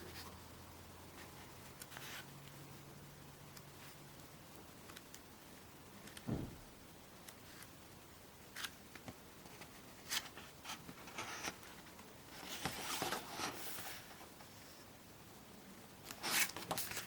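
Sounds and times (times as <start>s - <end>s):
paper pages rustling: 1.2s - 2.3s, 8.5s - 14.2s, 16.0s - 17.0s.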